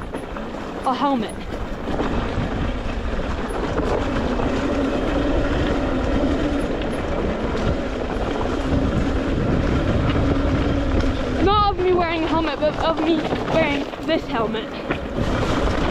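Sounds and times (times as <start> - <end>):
rushing rattling ride noise: 0.0 - 15.9
electric motor whine: 2.0 - 11.4.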